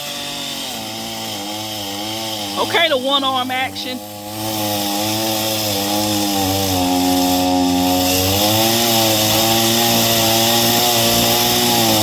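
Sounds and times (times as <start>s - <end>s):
chainsaw cutting tree limb: 0.0s - 12.0s.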